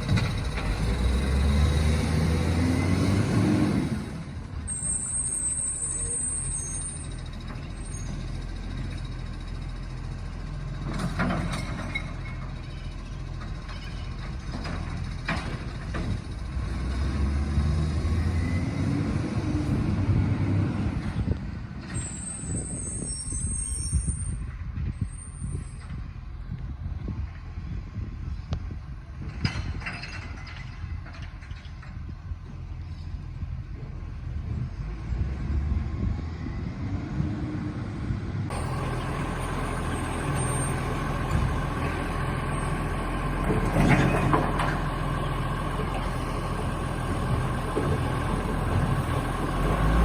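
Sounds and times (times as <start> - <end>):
truck diesel engine running: 38.5 - 50.0.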